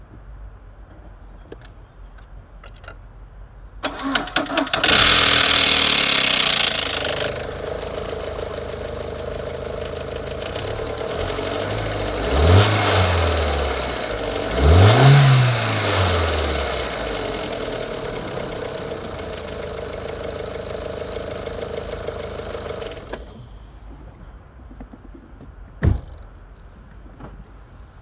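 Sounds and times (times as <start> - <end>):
car engine starting and idling: 3.8 - 24.0
engine revving: 3.9 - 23.2
engine knock: 4.6 - 23.2.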